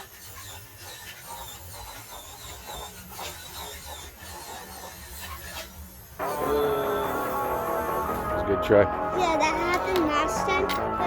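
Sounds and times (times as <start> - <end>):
small electric motor whining: 0.0 - 8.4.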